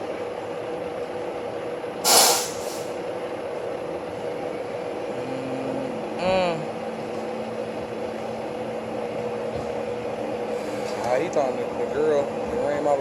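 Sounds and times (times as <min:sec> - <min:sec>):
short loud hiss: 0:02.0 - 0:02.9.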